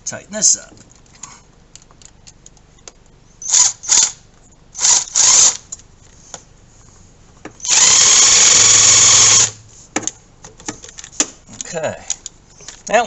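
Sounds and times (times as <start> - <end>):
power drill motor: 3.4 - 4.2, 4.8 - 5.6, 7.6 - 9.6.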